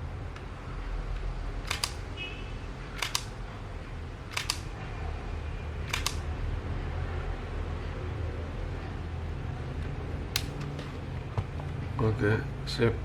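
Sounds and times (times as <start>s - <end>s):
camera shutter double click: 1.6s - 2.0s, 3.0s - 3.3s, 4.3s - 4.6s, 5.9s - 6.2s.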